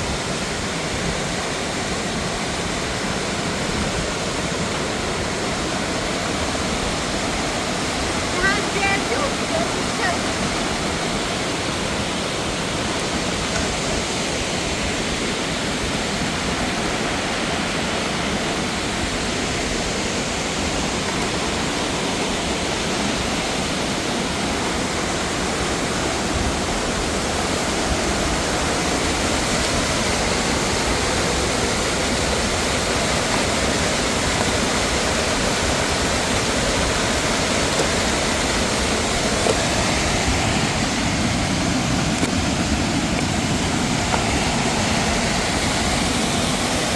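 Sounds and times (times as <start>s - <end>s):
rushing water: 0.0s - 46.9s.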